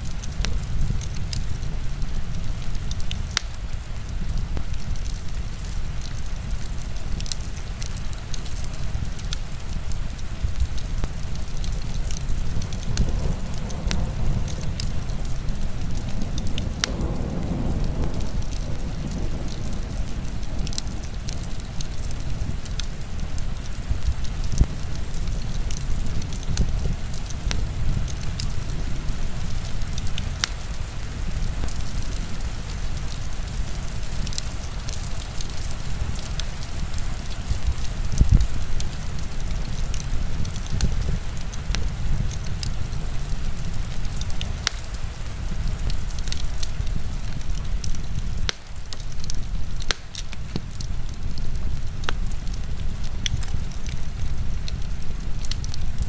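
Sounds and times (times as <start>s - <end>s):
heavy rain hissing: 0.0s - 56.0s
wood fire crackling: 0.0s - 56.0s.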